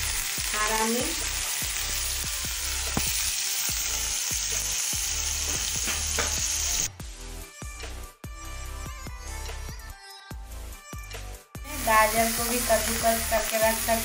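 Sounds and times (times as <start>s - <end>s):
onions sizzling in hot oil: 0.0s - 6.9s, 11.7s - 14.0s.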